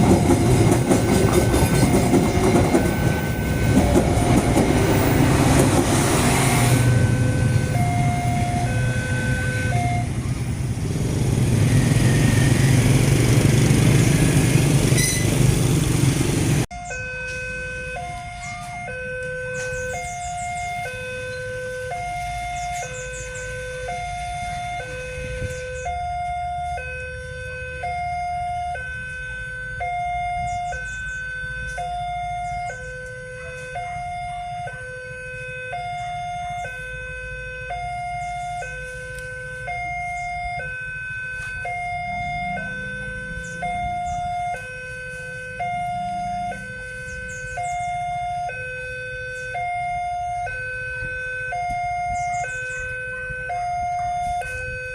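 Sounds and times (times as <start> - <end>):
two-tone crossing alarm: 0.0 - 15.4, 16.6 - 54.9
low rumble of idling engines: 6.8 - 16.7.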